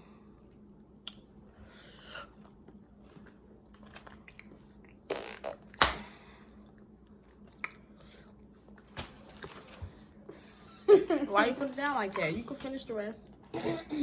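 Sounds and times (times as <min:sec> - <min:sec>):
person chewing food: 0:02.2 - 0:05.6.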